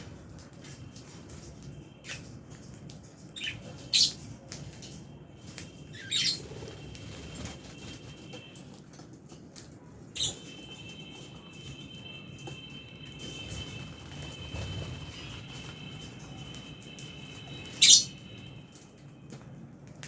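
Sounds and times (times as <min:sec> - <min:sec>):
lovebirds chirping and squawking: 0:03.2 - 0:04.3, 0:05.8 - 0:07.6, 0:10.1 - 0:10.6, 0:17.4 - 0:18.3.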